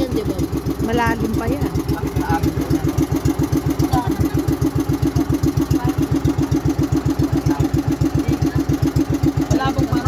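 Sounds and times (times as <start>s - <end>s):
engine chugging: 0.0s - 10.0s.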